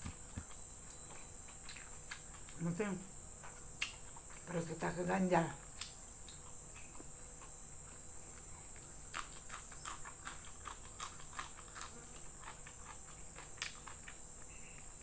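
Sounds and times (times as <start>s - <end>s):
crisp chewing crunches: 0.0s - 2.7s, 5.7s - 15.0s.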